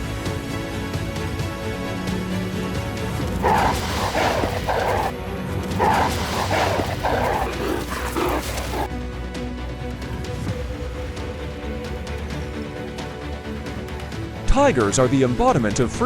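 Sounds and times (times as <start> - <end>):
background music: 0.0 - 15.8
harsh animal calls: 3.4 - 5.1, 5.8 - 8.9.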